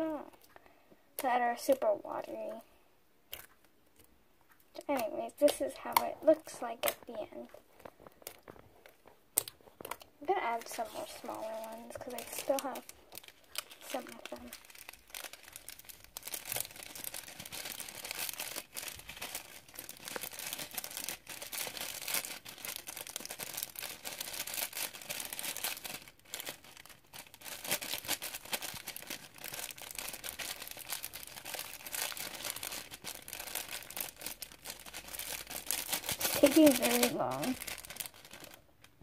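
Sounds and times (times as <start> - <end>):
plastic packet crinkling: 4.8 - 39.0.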